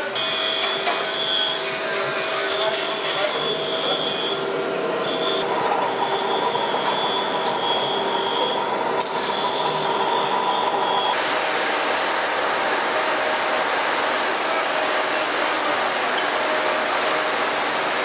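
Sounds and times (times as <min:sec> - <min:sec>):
log rounding machine cutting: 0:11.2 - 0:18.0.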